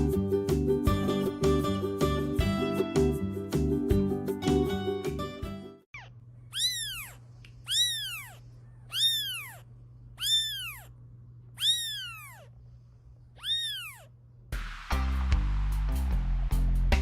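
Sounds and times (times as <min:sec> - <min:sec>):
cat meowing: 0:05.9 - 0:11.0, 0:11.6 - 0:12.6, 0:13.3 - 0:14.2
faint low hum: 0:05.9 - 0:14.5.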